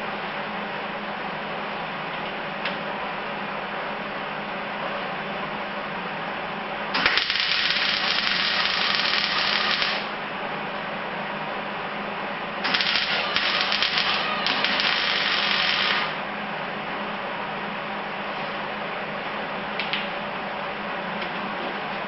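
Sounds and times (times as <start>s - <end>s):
steady low hum: 0.0s - 22.0s
welder arc crackling: 7.0s - 10.2s, 12.6s - 16.2s.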